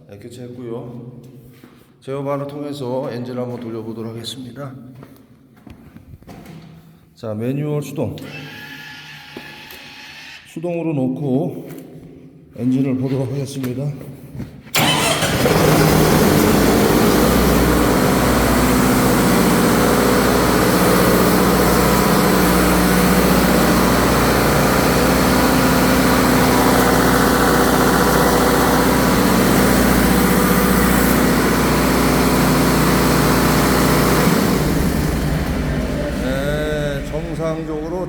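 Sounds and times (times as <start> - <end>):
pump engine running: 14.8 - 38.0.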